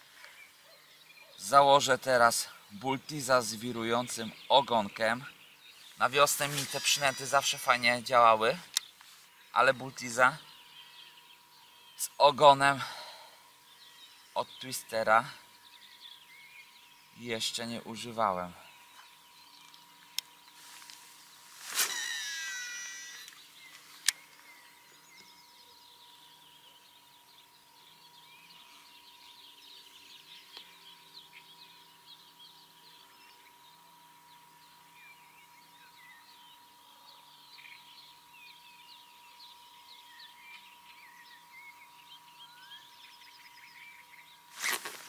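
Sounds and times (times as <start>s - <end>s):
birds chirping faintly: 0.0s - 45.0s.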